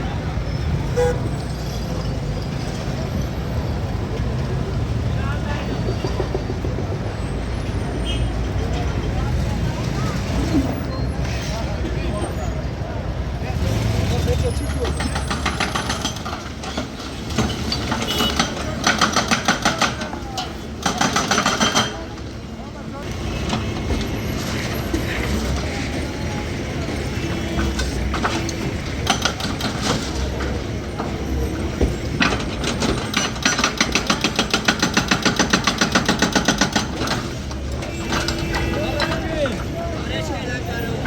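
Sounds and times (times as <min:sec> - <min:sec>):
demolition breaker hammering: 0:14.9 - 0:22.1, 0:32.1 - 0:37.4.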